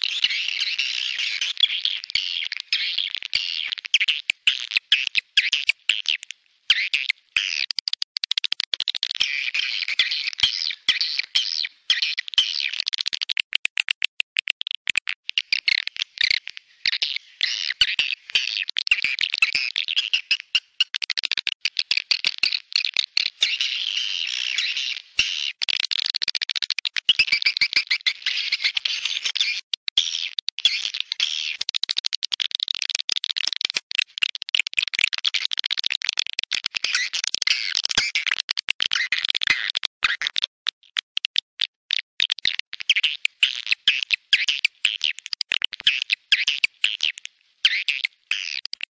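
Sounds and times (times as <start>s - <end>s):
rapid sharp clicks: 13.0s - 15.1s.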